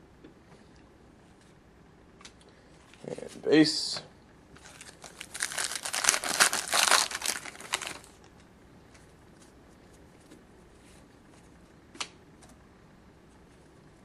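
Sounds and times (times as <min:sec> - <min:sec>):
wrapper tearing and crinkling: 0:04.6 - 0:08.2.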